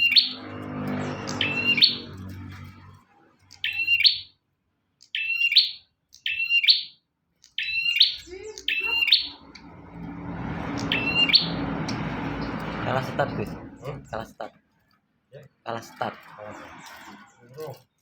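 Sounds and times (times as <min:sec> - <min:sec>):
bird chirping: 0:00.0 - 0:04.4, 0:05.0 - 0:14.5
low hum: 0:09.2 - 0:14.5.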